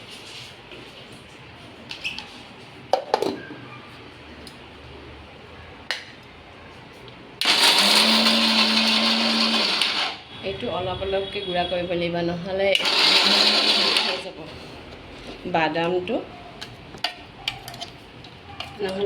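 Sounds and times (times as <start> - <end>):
mixer grinder motor humming: 7.4 - 10.3, 12.7 - 14.4.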